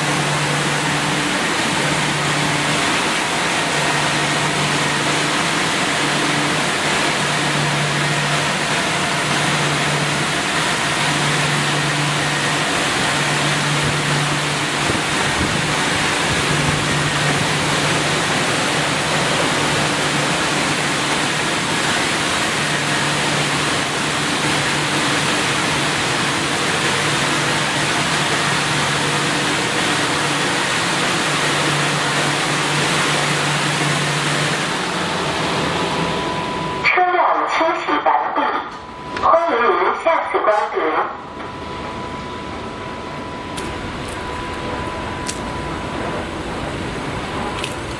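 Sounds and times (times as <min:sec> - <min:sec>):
low motor hum: 0:00.0 - 0:36.8, 0:41.2 - 0:47.9
car wash rushing noise: 0:00.0 - 0:38.6, 0:42.5 - 0:47.9.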